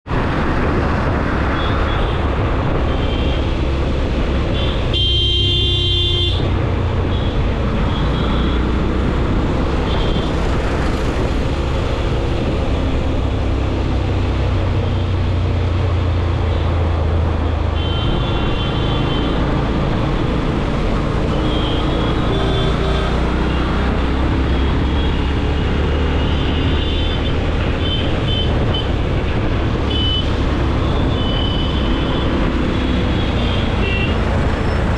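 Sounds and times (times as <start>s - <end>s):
motorcycle engine and road rumble: 0.0s - 34.9s
vehicle horns honking: 4.5s - 6.5s, 17.8s - 19.4s, 29.9s - 34.2s.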